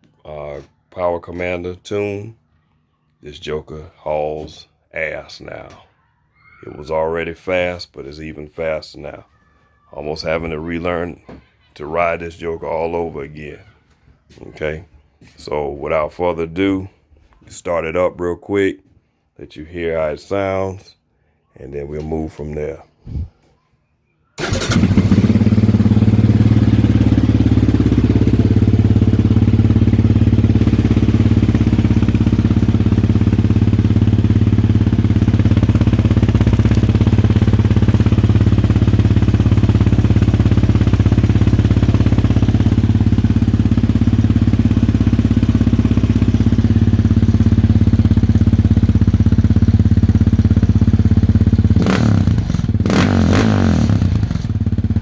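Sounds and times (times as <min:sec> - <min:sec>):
atv engine starting and idling: 0:24.4 - 0:55.0.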